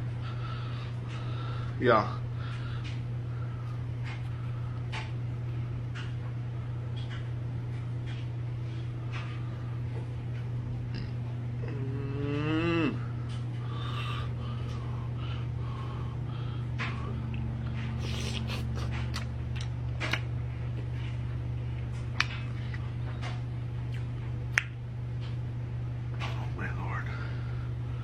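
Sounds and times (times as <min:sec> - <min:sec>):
steady low hum: 0:00.0 - 0:28.0
person humming mmm: 0:10.9 - 0:14.3
wet chewing and mouth smacks: 0:16.8 - 0:20.3, 0:21.8 - 0:25.4.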